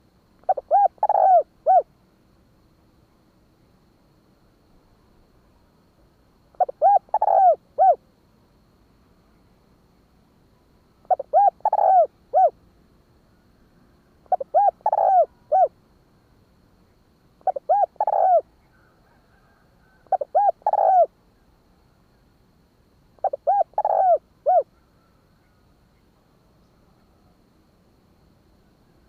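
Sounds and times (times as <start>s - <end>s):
dove cooing: 0.4s - 1.9s, 6.5s - 8.0s, 11.0s - 12.6s, 14.2s - 15.8s, 17.4s - 21.1s, 23.2s - 25.2s.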